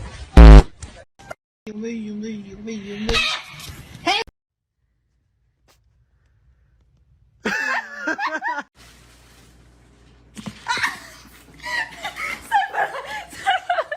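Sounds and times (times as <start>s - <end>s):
person giggling: 7.4s - 8.6s.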